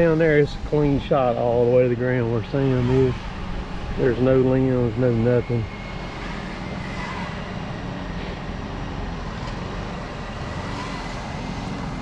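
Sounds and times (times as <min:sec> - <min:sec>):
faint high whine: 0:00.0 - 0:11.2
crane engine running: 0:00.0 - 0:12.0.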